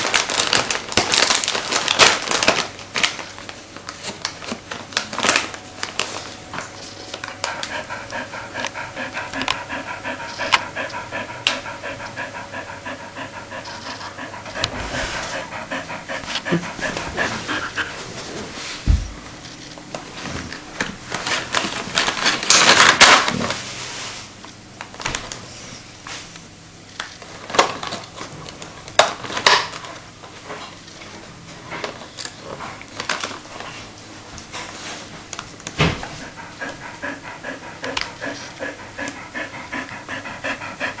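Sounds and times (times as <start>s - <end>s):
dog panting: 7.2s - 18.6s, 35.9s - 41.0s.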